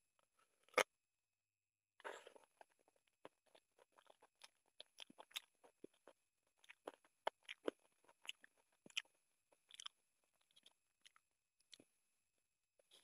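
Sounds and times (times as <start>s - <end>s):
wet chewing smacks and clicks: 2.3s - 11.9s.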